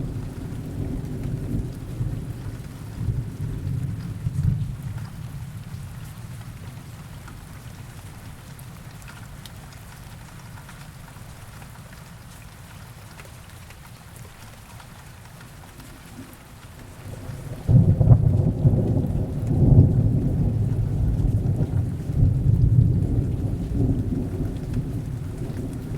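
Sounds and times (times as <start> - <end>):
low thunder rumble: 0.0 - 6.0, 16.8 - 25.9
heavy rain falling: 0.0 - 25.9
loud thunderclap: 17.0 - 25.9.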